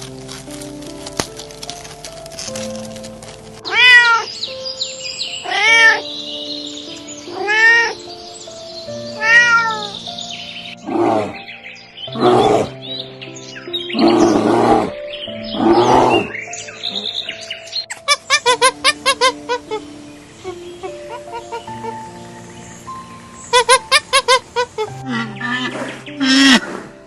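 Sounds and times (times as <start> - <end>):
background music: 0.0 - 27.0
cat meowing: 3.6 - 4.4, 5.4 - 6.2, 7.3 - 8.0, 9.2 - 10.0.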